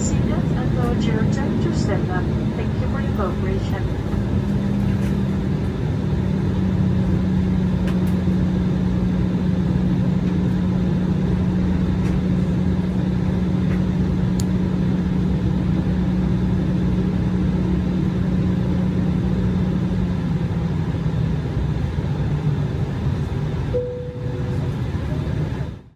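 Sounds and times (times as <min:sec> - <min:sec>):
low hum: 0:00.0 - 0:16.7, 0:23.7 - 0:25.2
jet cabin rumble: 0:00.0 - 0:25.9.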